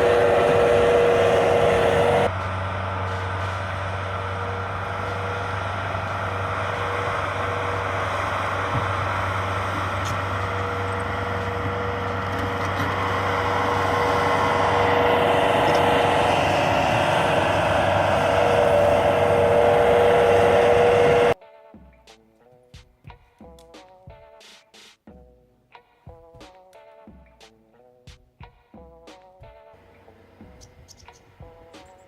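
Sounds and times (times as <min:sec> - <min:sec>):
motor humming: 0:00.0 - 0:21.4.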